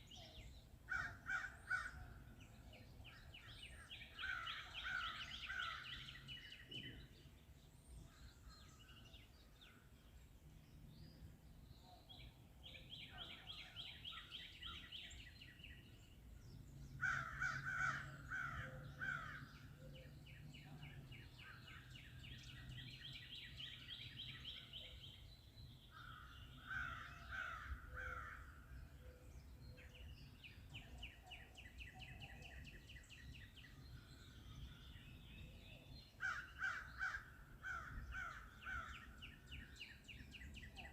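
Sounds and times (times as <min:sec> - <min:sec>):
harsh low bird calls: 0:30.7 - 0:40.9.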